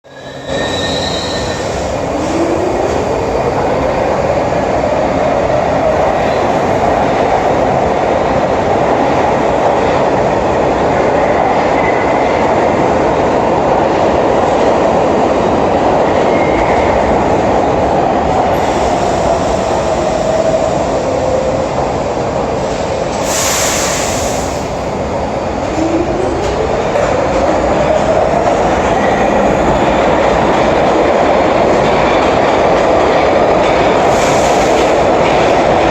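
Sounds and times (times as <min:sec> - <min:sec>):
wheels rumbling on rail: 0:11.5 - 0:35.9.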